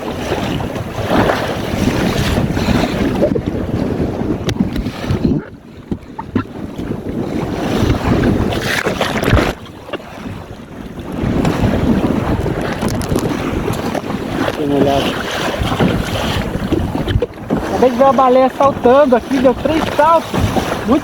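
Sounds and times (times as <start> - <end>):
water splashing along hull: 0.0 - 21.0
wind buffeting microphone: 0.0 - 21.0.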